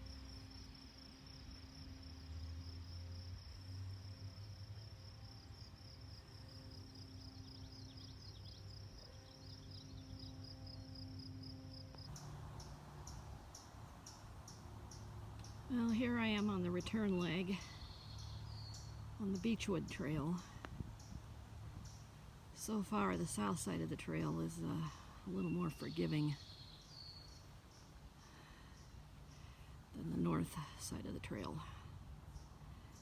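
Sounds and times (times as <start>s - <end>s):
high cricket chirps: 0.0s - 19.6s
crickets trilling: 0.0s - 22.7s.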